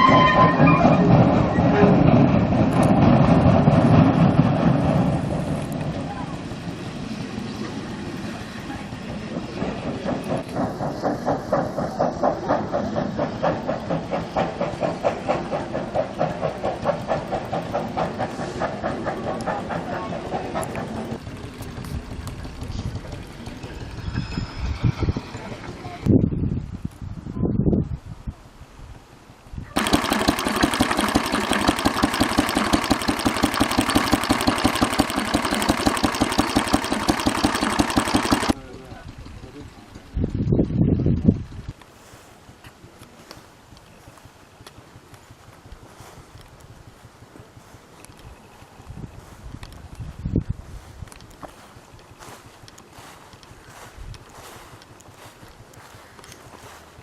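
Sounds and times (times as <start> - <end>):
tractor engine idling: 0.0 - 24.4, 29.8 - 40.5
steam locomotive chuffing: 0.0 - 26.0, 29.8 - 40.3
steady steam hiss: 4.1 - 21.7.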